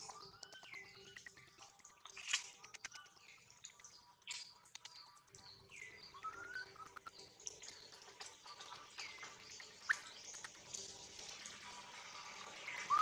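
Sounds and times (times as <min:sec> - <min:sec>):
faint bird whistles: 0:05.8 - 0:07.1, 0:12.7 - 0:13.0.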